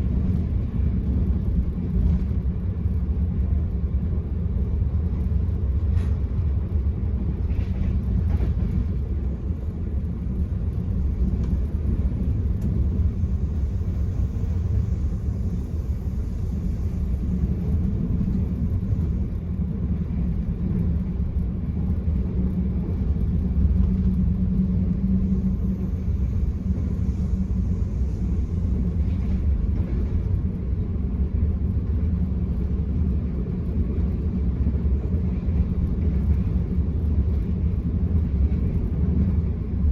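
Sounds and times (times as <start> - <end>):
train wheels on rails: 0.0 - 39.9
faint hum: 7.0 - 39.9.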